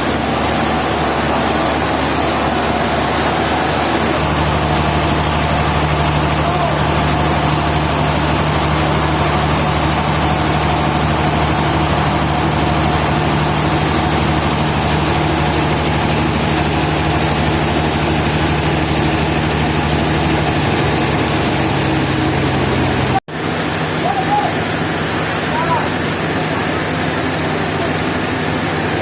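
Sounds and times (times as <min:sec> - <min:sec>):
machine engine humming: 0:00.0 - 0:29.0.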